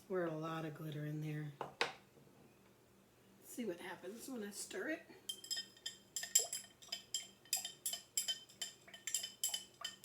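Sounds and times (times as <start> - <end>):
utensil clinking against jar: 5.3 - 10.0.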